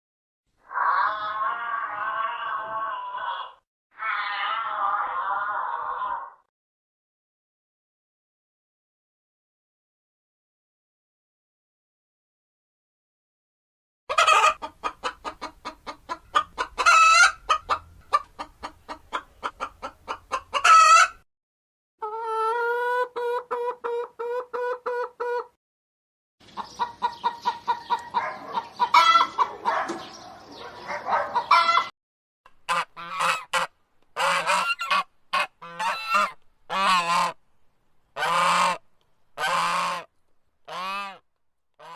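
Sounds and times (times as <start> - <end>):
chicken clucking and squawking: 0.7 - 6.1, 14.1 - 21.2, 22.0 - 25.6, 26.4 - 31.9, 32.7 - 37.4, 38.2 - 38.8, 39.4 - 40.1, 40.7 - 41.2
goose honks: 32.7 - 37.4.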